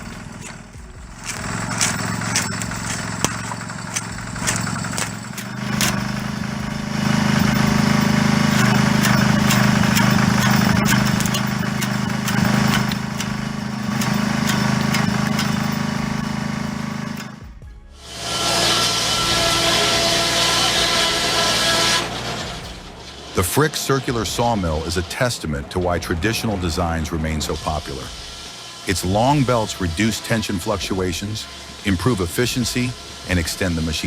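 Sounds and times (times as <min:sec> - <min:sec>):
sharp clicks and cracks: 0:00.0 - 0:17.4
tractor engine running: 0:00.0 - 0:34.0.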